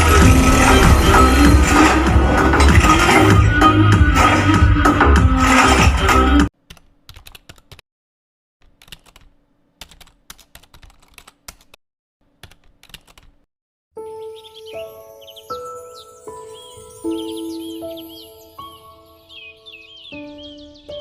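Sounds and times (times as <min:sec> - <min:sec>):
music: 0:00.0 - 0:06.5, 0:14.0 - 0:21.0
birds chirping: 0:14.0 - 0:21.0
soft music: 0:14.0 - 0:21.0.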